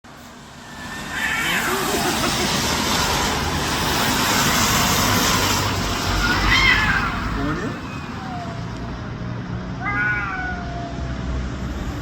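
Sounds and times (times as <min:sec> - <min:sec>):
cats yowling: 0:01.0 - 0:02.2, 0:06.1 - 0:08.8, 0:09.7 - 0:11.3.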